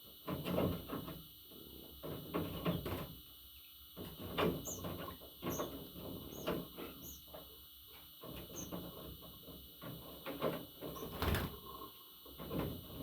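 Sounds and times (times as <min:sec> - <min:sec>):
faint high bird chirps: 0:04.6 - 0:04.9, 0:06.3 - 0:07.4.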